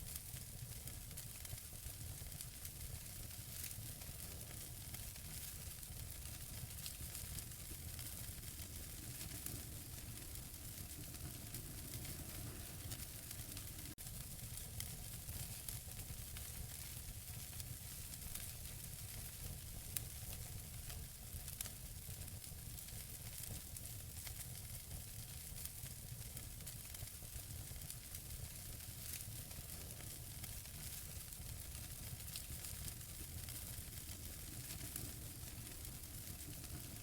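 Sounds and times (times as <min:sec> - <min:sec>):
fire crackles: 0:00.0 - 0:37.0
fire hissing: 0:02.0 - 0:15.6, 0:27.8 - 0:37.0.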